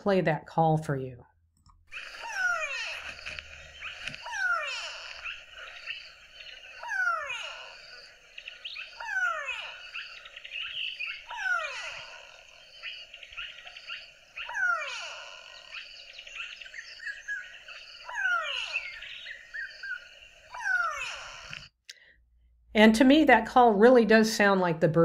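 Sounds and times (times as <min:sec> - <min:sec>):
background chirping: 0:01.8 - 0:21.8
bird calls falling in pitch: 0:01.9 - 0:21.7.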